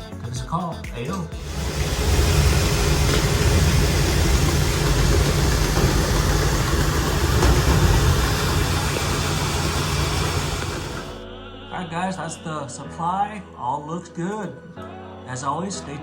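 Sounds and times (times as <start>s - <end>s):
vacuum air rushing: 1.4s - 11.2s.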